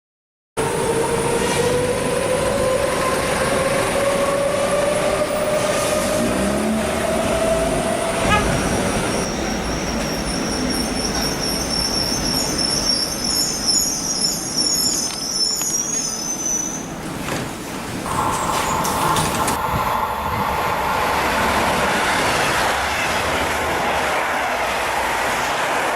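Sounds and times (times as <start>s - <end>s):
train running on rails: 0.6s - 25.9s.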